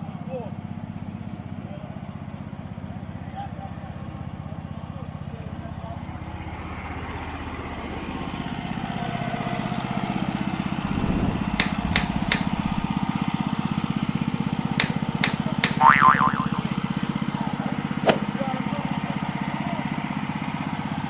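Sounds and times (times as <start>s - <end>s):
small tractor engine running: 4.0s - 21.0s
sharp metallic clicks: 11.1s - 13.1s, 14.8s - 16.8s.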